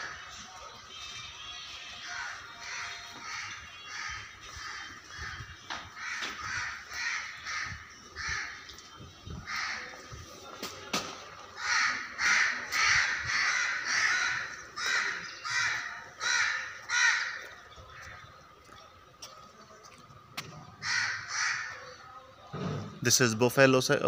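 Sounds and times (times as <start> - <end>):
birds giving harsh calls: 1.1 - 10.3, 11.5 - 18.7, 20.7 - 22.1.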